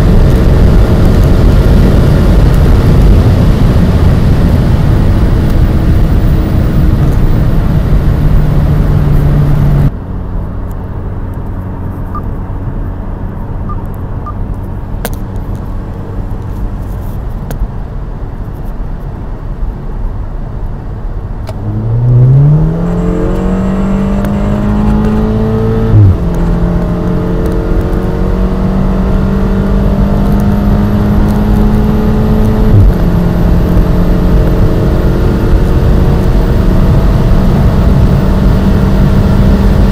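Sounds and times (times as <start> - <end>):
car engine accelerating: 0.0 - 18.6, 20.9 - 39.9.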